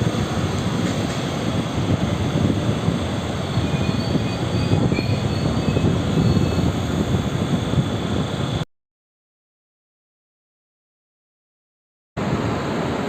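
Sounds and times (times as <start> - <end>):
electric train rumbling: 0.0 - 8.6, 12.2 - 13.0
faint wheel squeals: 3.5 - 6.7.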